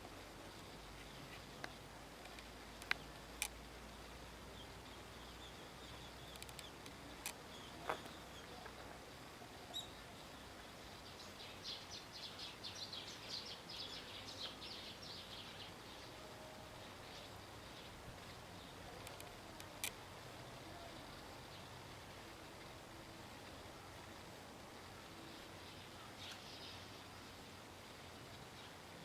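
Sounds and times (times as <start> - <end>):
small birds chirping: 0.5 - 22.8, 23.4 - 27.6, 28.3 - 29.0.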